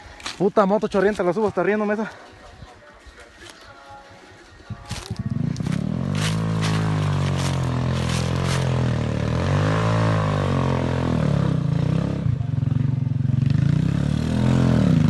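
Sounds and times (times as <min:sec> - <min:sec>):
motorcycle engine revving: 0:05.0 - 0:15.0.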